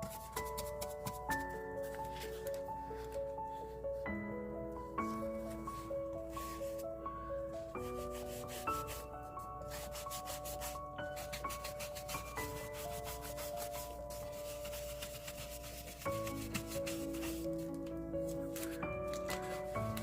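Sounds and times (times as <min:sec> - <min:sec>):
soft background music: 0:00.0 - 0:20.0
scratchy rubbing on paper: 0:07.8 - 0:20.0.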